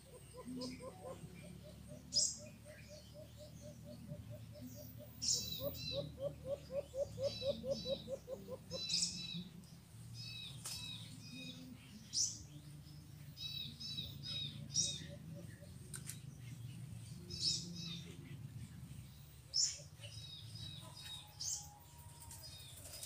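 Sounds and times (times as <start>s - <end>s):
bird hooting low notes: 0.0s - 9.5s.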